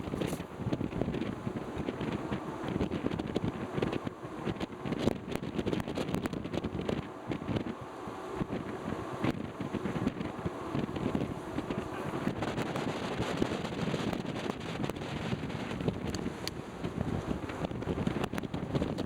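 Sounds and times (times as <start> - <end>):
brief crackles: 0.0 - 0.5
wind buffeting microphone: 0.0 - 19.0.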